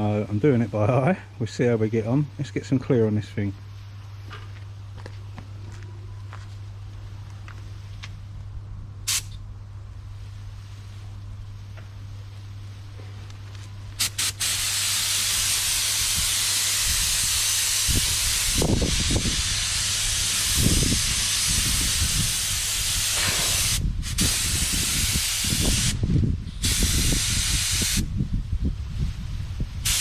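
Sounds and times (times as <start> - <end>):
paint spray gun hissing: 14.0 - 26.0, 26.6 - 28.1.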